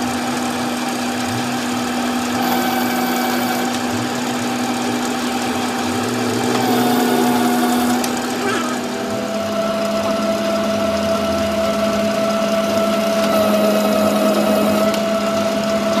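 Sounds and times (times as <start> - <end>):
workshop machine motor humming: 0.0 - 16.0.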